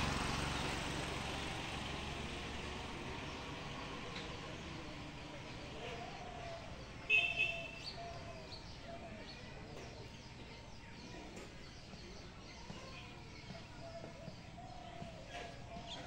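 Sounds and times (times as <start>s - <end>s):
birds chirping and calling: 2.6s - 16.0s
shrill bird call: 6.5s - 8.6s.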